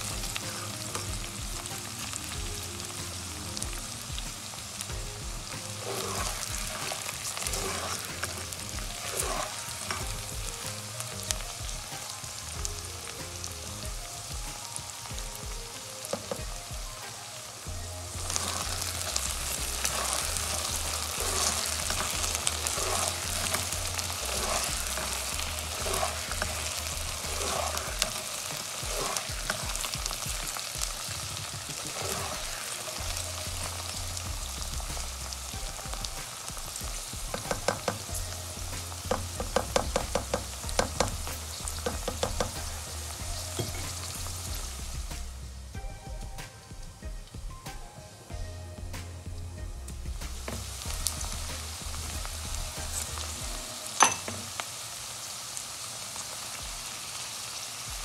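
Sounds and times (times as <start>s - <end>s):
spatula stirring: 0.0s - 14.0s, 17.7s - 45.1s
vegetables sizzling in oil: 0.0s - 58.0s
spatula tapping pan: 16.1s - 16.6s, 18.2s - 33.1s, 37.0s - 38.2s, 39.0s - 42.8s, 54.0s - 54.5s.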